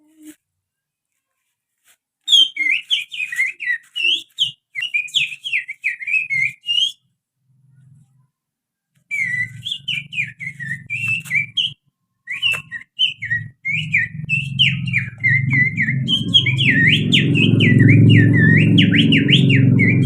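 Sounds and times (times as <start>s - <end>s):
finger whistle imitating birdsong: 2.3s - 7.1s, 9.1s - 20.0s.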